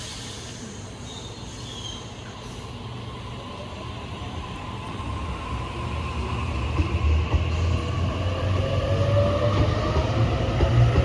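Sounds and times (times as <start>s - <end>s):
electric train rumbling: 0.0s - 11.0s
faint train whine: 0.0s - 11.0s.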